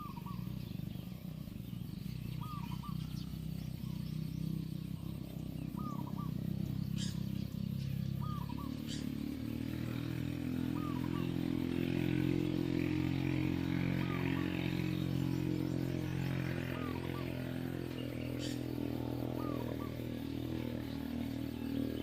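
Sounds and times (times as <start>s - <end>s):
low motor hum: 0.0s - 22.0s
bird double chirp: 5.0s - 9.2s, 10.6s - 11.5s, 16.7s - 20.2s.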